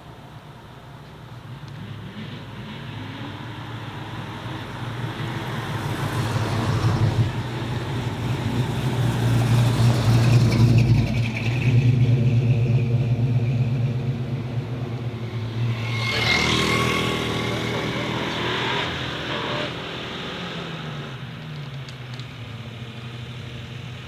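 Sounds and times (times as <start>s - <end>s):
car engine pulling away: 2.0s - 19.2s.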